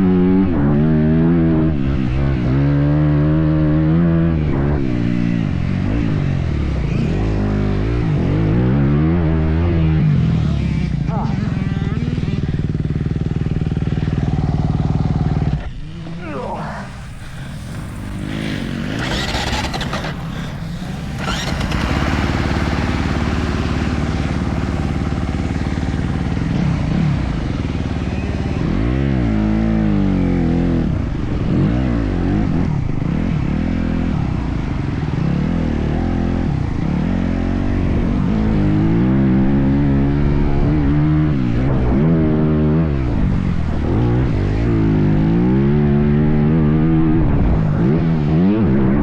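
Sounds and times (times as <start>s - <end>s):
dirt bike engine revving: 11.5s - 32.7s.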